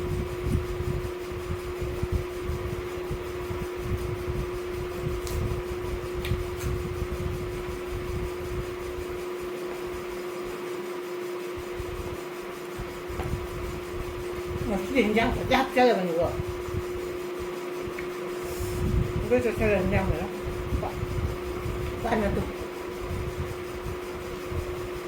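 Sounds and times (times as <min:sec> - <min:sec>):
electric fan whirring: 0:00.0 - 0:25.0.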